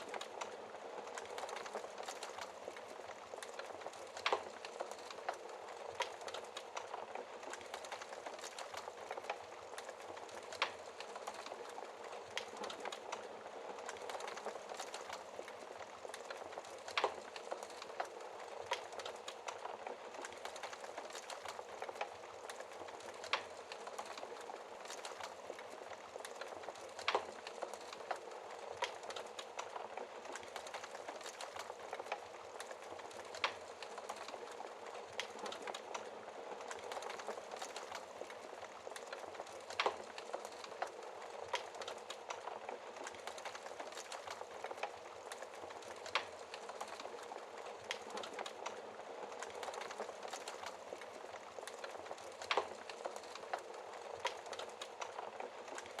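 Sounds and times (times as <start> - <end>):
burning logs popping: 0.0 - 56.0
fire crackling in fireplace: 0.0 - 56.0.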